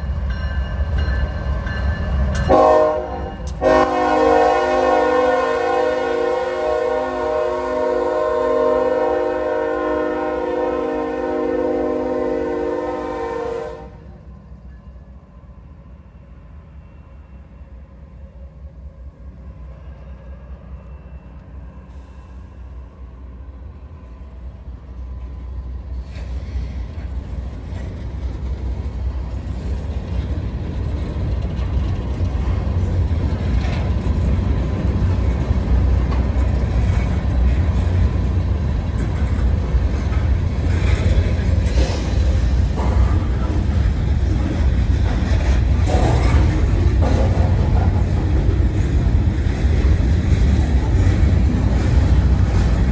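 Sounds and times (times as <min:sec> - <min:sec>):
freight train wheels rumbling: 0:00.0 - 0:52.9
rattling clacks from cars: 0:29.8 - 0:52.9.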